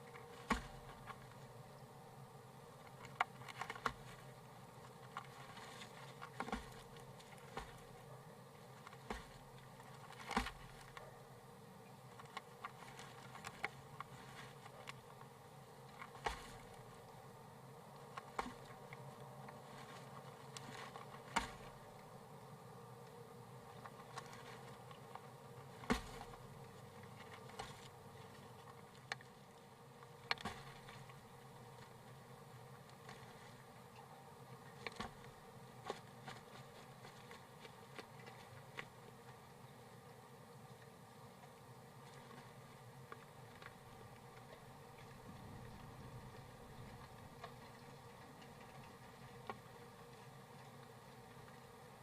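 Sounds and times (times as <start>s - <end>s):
steady low hum: 0.0s - 52.0s
taps and scratches in nest box: 0.3s - 1.3s, 5.1s - 8.0s, 8.8s - 11.0s, 18.2s - 21.8s, 25.8s - 26.5s.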